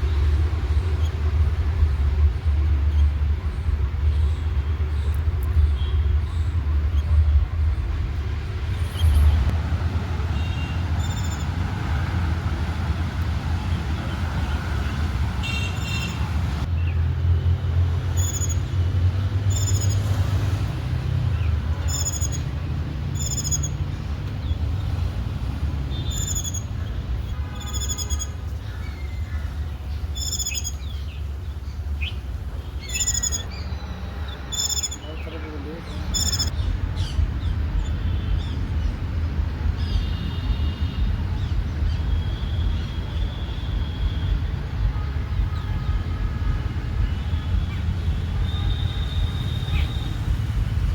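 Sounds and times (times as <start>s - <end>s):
birds chirping high and thin: 10.3s - 12.1s, 13.5s - 17.0s, 18.1s - 20.1s, 21.3s - 25.0s, 25.9s - 43.6s.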